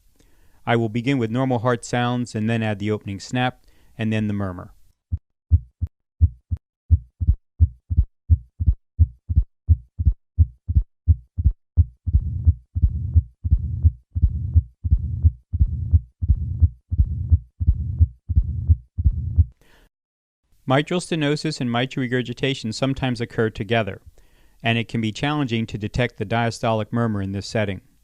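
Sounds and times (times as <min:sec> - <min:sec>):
low rumbling heart murmur: 0:05.5 - 0:19.5
heartbeat thuds: 0:05.5 - 0:19.6.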